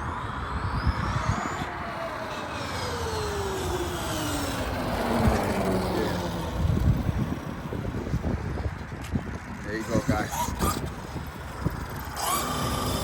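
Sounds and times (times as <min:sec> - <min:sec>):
motor whine falling in pitch: 0:00.0 - 0:05.7.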